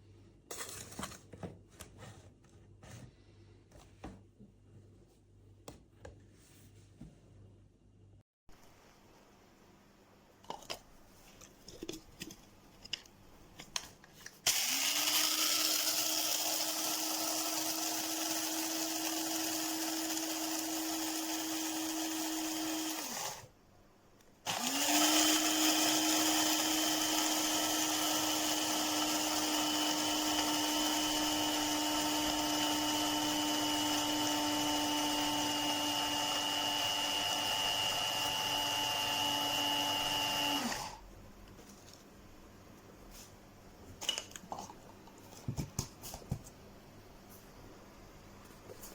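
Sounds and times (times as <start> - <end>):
coffee grinder motor running: 14.5 - 23.4, 24.5 - 41.0.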